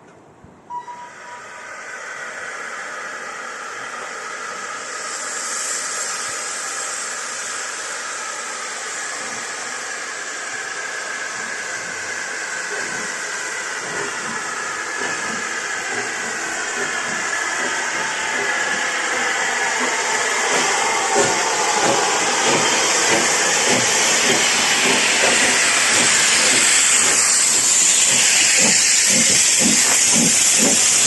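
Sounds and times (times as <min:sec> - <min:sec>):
steam locomotive hissing steam: 0:00.7 - 0:31.0.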